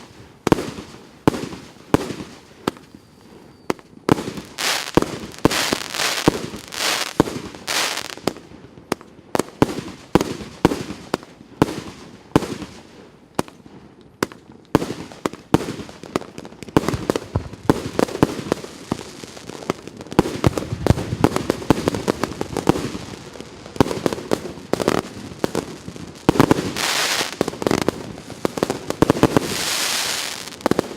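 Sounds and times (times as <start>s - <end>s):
firework aerial bursts: 0.0s - 8.4s, 16.7s - 30.9s
firework hissing spray: 4.5s - 8.2s, 26.4s - 27.4s, 29.0s - 30.7s.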